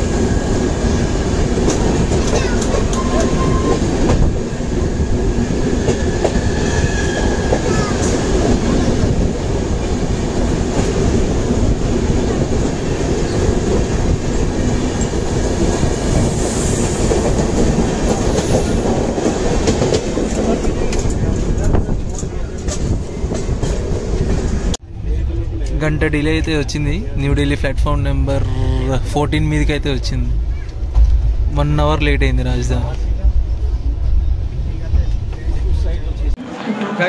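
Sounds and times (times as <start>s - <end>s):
train wheels rumbling on rail: 0.0s - 36.4s
clickety-clack over rail joints: 1.4s - 4.4s, 9.8s - 24.8s.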